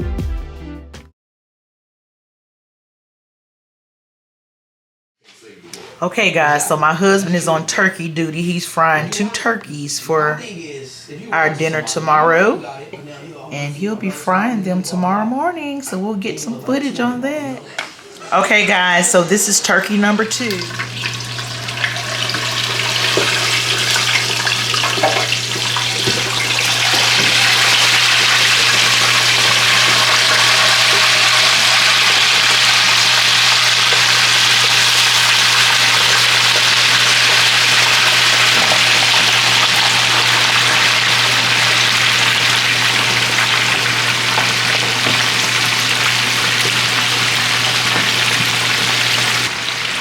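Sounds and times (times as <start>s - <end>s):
hot oil bubbling and sizzling: 20.4s - 50.0s.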